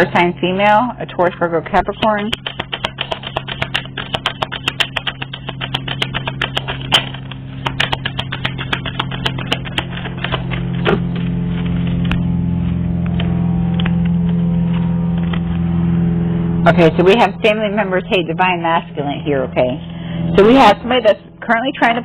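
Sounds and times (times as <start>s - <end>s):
steady low hum: 0.0s - 22.0s
cards being shuffled: 2.0s - 12.1s.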